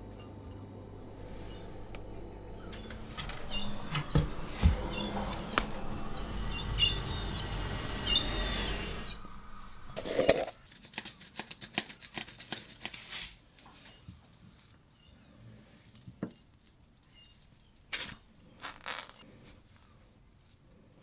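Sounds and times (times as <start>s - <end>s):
low hum: 0.0s - 10.6s
seagull calling: 3.4s - 10.5s.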